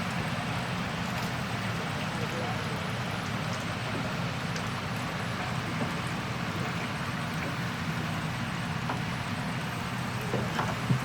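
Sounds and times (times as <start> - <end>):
diesel engine running: 2.9 - 11.0.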